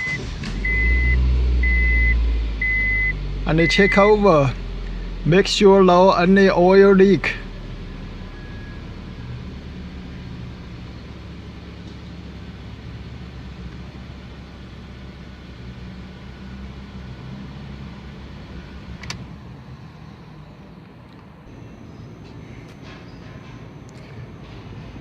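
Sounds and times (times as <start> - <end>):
car engine idling: 0.0 - 22.1.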